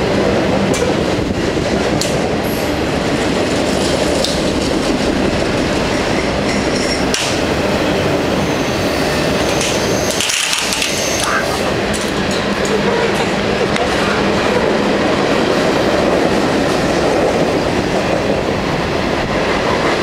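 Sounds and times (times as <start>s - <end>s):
train wheels rumbling on rail: 0.0s - 20.0s
sharp clicks of train wheels: 0.4s - 8.1s, 8.9s - 14.2s.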